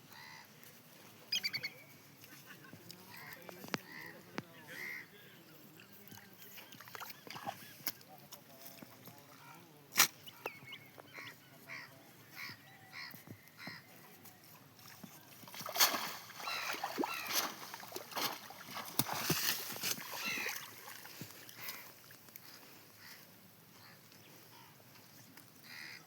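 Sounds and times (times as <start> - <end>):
water splashing: 15.3 - 21.7
waterfowl honking: 16.4 - 17.6.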